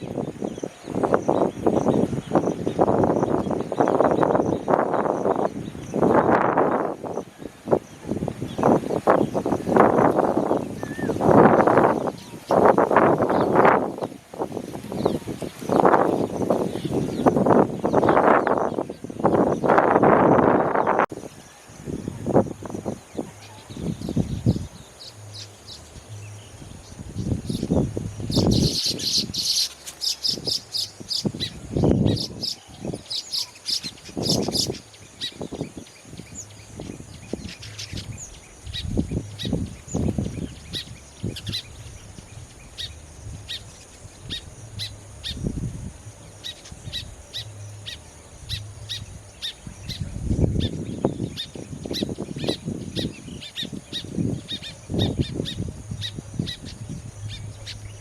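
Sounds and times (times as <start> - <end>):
birds chattering: 23.1 - 58.0.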